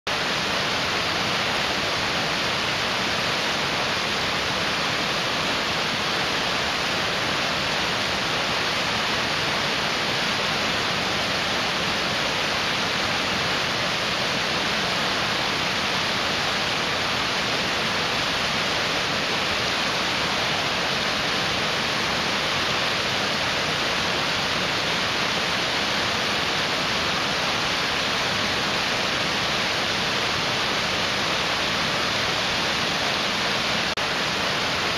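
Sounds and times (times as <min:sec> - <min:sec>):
mountain stream rushing: 0:00.1 - 0:34.9.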